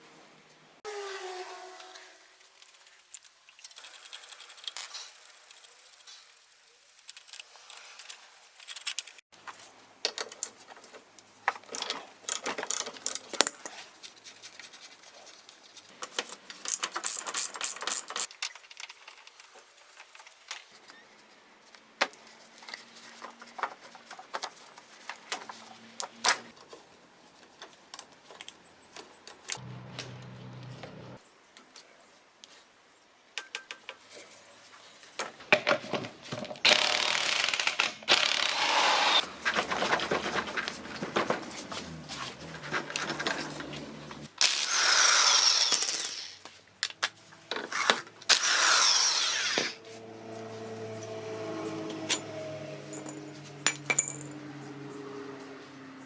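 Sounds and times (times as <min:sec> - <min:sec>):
metal tools and fasteners clinking: 0:10.0 - 0:14.4, 0:15.7 - 0:21.0, 0:39.2 - 0:44.6, 0:51.7 - 0:54.5.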